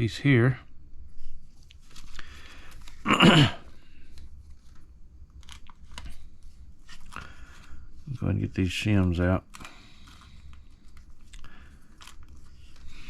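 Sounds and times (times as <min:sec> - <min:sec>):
plastic bag crinkling: 0:04.0 - 0:08.2, 0:09.5 - 0:13.0.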